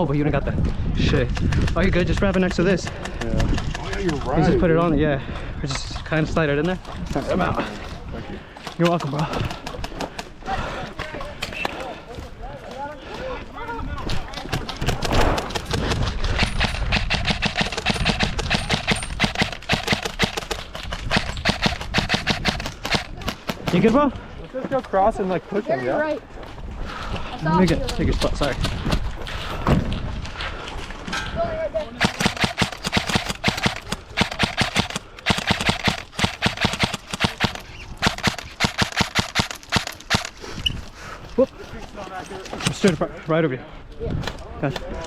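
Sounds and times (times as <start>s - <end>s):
running footsteps on dirt: 6.8s - 31.1s
quick footsteps: 8.6s - 23.9s, 32.0s - 42.0s.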